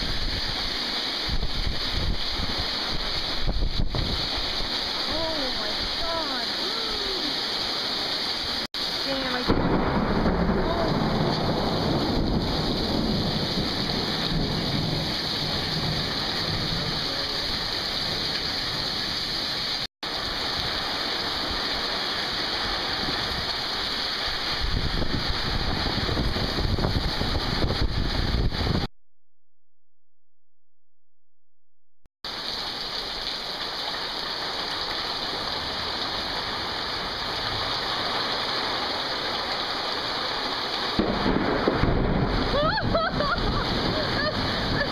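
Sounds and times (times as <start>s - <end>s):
heavy rain pouring: 0.0s - 28.9s, 32.3s - 44.9s
low thunder rumbling: 9.1s - 19.1s, 24.5s - 28.9s, 41.0s - 44.9s.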